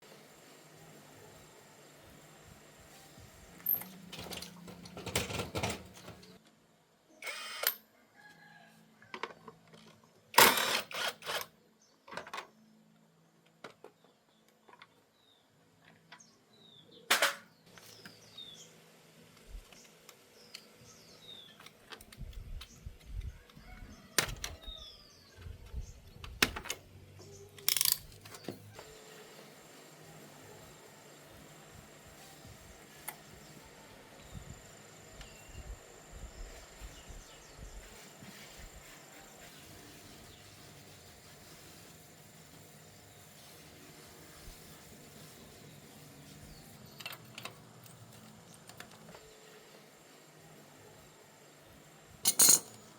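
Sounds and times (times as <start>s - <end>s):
metal engine parts clattering: 52.3s - 52.9s.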